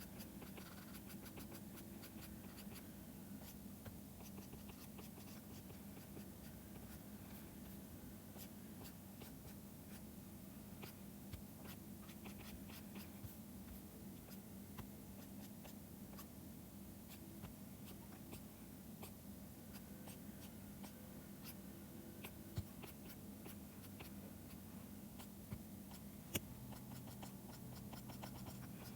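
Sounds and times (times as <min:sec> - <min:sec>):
stylus scratching on tablet: 0:00.0 - 0:02.8, 0:04.2 - 0:07.0, 0:08.3 - 0:10.1, 0:10.8 - 0:14.4, 0:15.2 - 0:16.3, 0:22.2 - 0:24.6, 0:25.2 - 0:28.9
low steady hum: 0:00.0 - 0:28.9.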